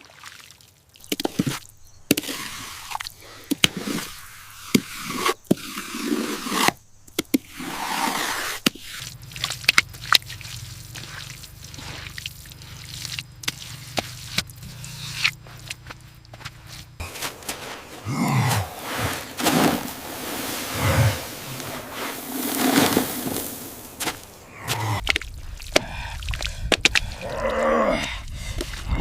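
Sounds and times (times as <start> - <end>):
irregular scraping: 3.6 - 6.8, 12.8 - 25.0.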